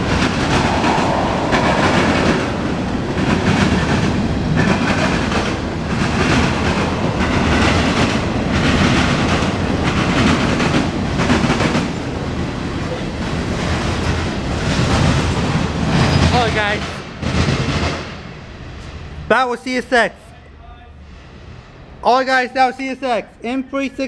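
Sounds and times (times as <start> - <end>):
wheels clacking over rail joints: 0.0 - 18.2
freight train wheels rumbling: 0.0 - 24.0.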